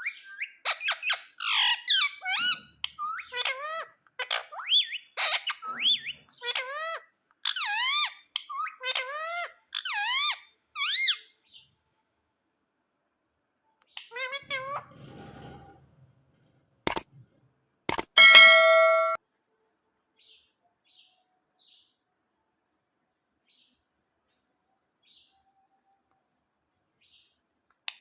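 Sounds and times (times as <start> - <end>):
parakeet squawking and chattering: 0.0 - 11.3, 13.9 - 15.0.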